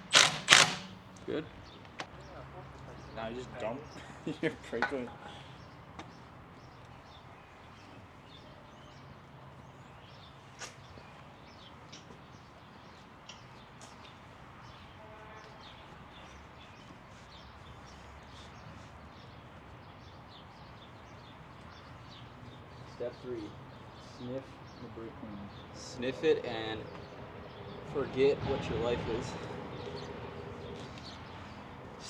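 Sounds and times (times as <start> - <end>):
birds chirping: 0.0 - 32.0
sharp click: 0.1 - 1.0.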